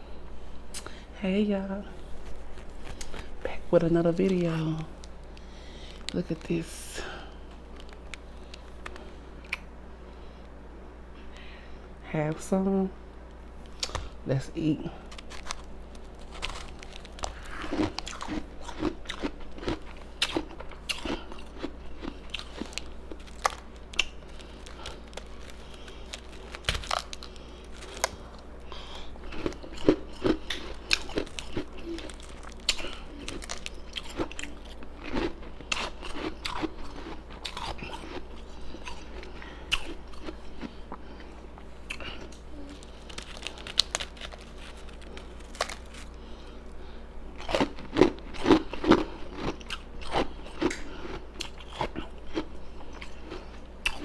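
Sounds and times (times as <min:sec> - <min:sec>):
soft chewing mouth sounds: 0:01.9 - 0:10.6, 0:15.0 - 0:54.0
ice crunching in mouth: 0:15.0 - 0:40.7, 0:41.9 - 0:46.2.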